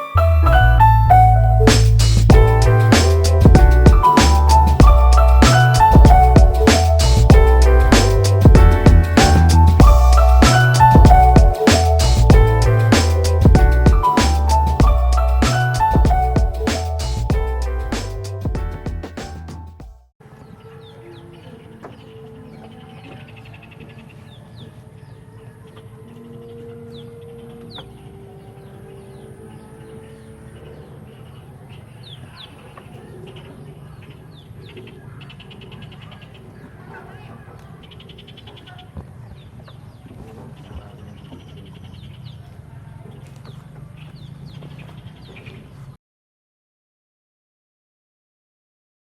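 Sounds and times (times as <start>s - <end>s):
low rumble: 0.2s - 14.0s
small birds chirping: 20.3s - 45.9s.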